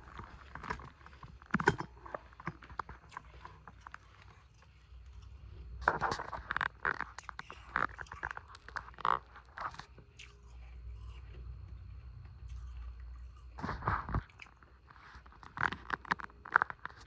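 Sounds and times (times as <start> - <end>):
ice being crunched: 6.0 - 9.8.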